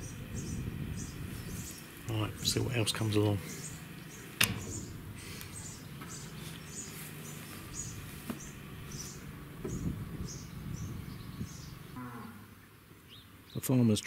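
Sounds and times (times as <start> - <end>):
small bird chirping: 0.0 - 2.0, 3.2 - 12.0
low hum: 0.0 - 13.0.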